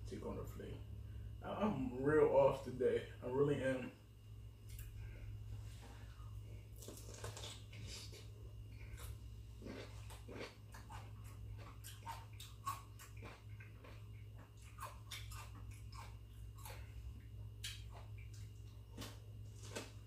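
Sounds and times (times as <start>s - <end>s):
steady low hum: 0.0s - 20.0s
person chewing food: 6.0s - 20.0s.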